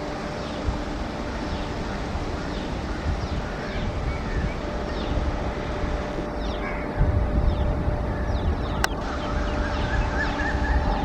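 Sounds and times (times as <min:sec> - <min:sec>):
faint hum: 0:00.0 - 0:11.0
train rumble: 0:00.0 - 0:11.0
bird chirps: 0:06.4 - 0:11.0.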